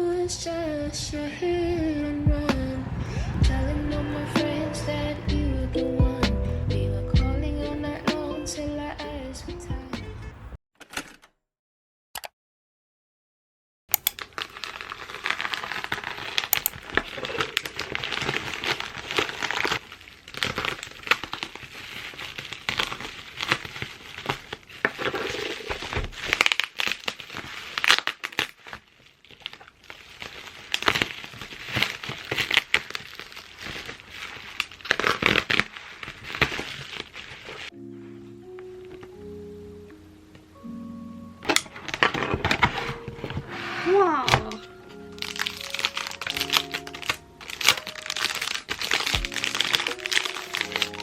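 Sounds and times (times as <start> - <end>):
soft music: 1.4 - 10.4, 37.7 - 51.0
plastic packaging crinkling: 14.0 - 37.8, 41.4 - 51.0.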